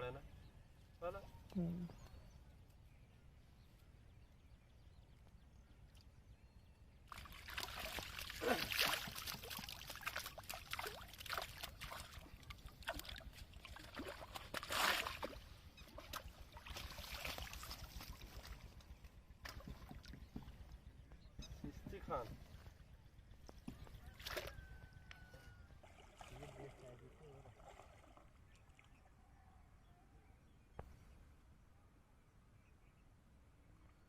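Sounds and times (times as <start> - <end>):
water splashing and sloshing: 7.0 - 20.8, 23.7 - 24.8, 25.8 - 29.0
water trickling: 7.1 - 14.2.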